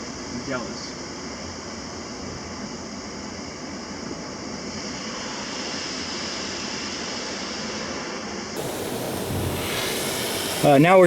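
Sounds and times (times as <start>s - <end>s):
car wash water jets spraying: 8.6s - 11.0s.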